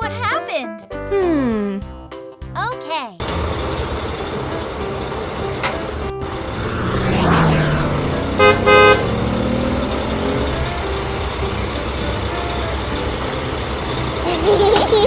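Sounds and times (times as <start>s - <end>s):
low engine rumble: 3.2s - 15.0s
cartoon vehicle horn honking: 8.3s - 9.4s.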